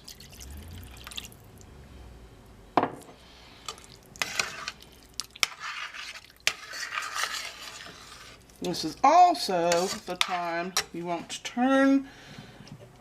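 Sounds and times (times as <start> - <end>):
gravy being stirred: 0.0 - 1.5, 3.5 - 12.0.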